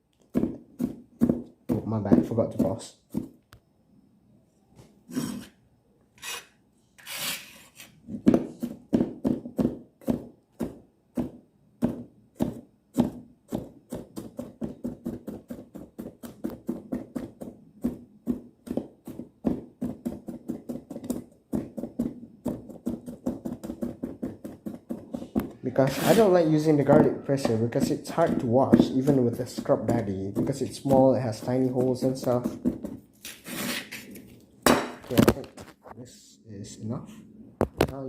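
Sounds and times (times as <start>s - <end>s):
knife chopping on cutting board: 0.3s - 3.4s, 8.2s - 25.5s, 26.9s - 33.1s
knife scraping on cutting board: 5.1s - 5.6s, 6.2s - 8.0s.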